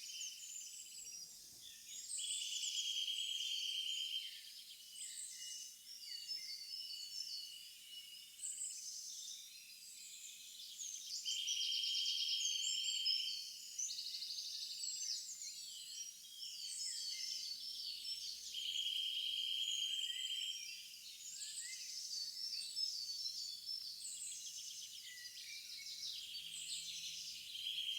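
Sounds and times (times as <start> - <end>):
small birds chirping: 10.5 - 27.9.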